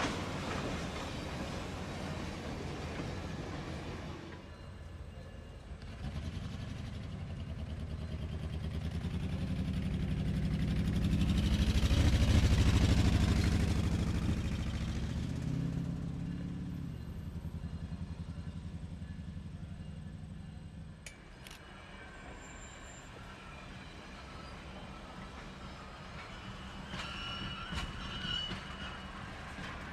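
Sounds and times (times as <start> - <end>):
locomotive diesel engine drone: 5.6 - 23.2.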